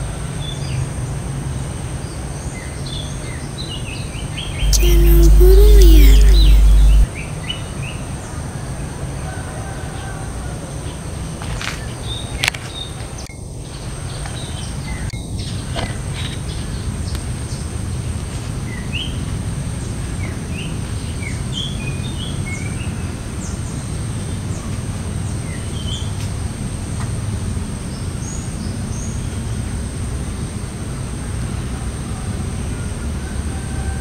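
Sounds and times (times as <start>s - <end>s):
low background rumble: 4.6s - 7.1s.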